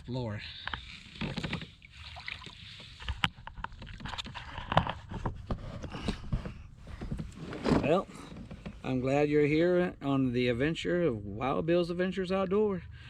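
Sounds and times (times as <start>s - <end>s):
paddle splashing water: 0.8s - 4.5s.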